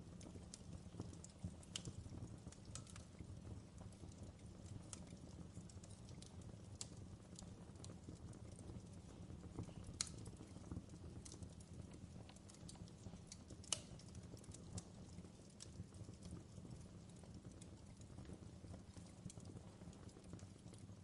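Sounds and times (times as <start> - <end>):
fireplace pops and snaps: 13.6 - 14.1.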